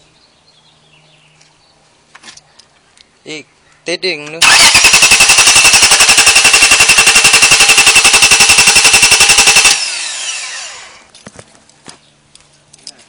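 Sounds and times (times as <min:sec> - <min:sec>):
car engine cranking: 0:04.4 - 0:10.9
starter motor whine spinning down: 0:04.4 - 0:11.1.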